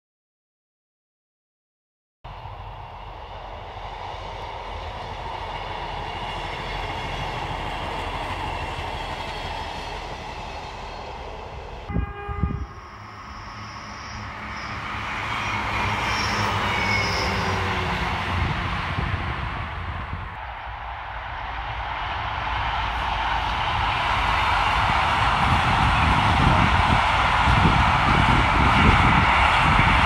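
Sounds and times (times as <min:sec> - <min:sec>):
diesel train passing: 0:02.3 - 0:30.0.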